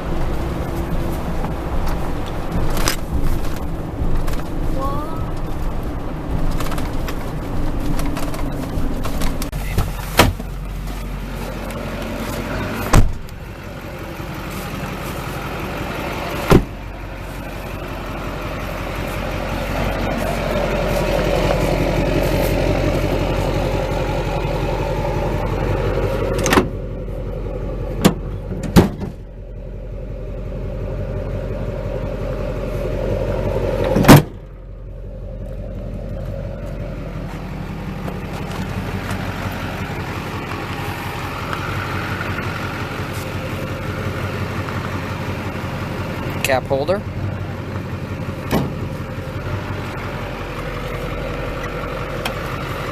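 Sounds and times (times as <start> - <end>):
diesel engine running: 0.0 - 52.9
sharp clunks: 7.9 - 10.6, 12.9 - 13.4, 28.0 - 29.2, 48.5 - 48.9.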